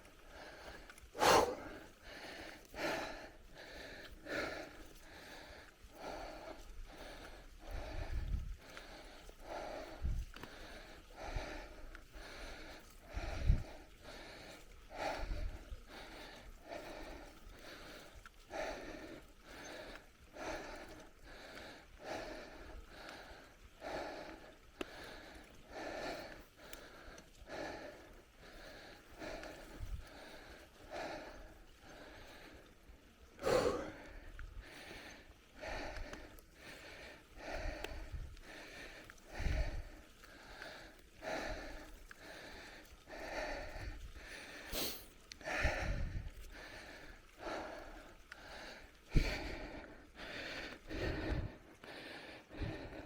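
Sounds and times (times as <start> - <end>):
cyclist breathing hard: 0.0 - 53.0.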